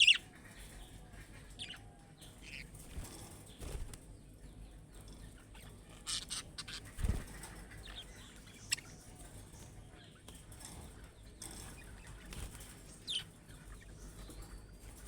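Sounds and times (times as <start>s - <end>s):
budgerigars chirping: 0.0s - 2.8s, 5.6s - 9.2s, 11.5s - 14.4s
wing flutters: 2.4s - 4.1s, 6.0s - 8.8s.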